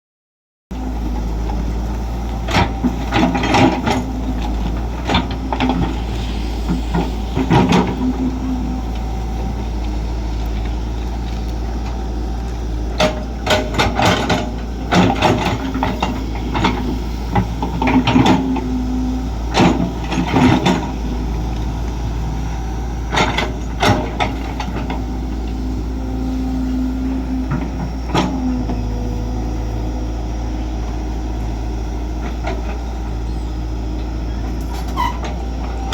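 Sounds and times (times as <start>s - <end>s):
excavator diesel engine running: 0.7s - 35.9s.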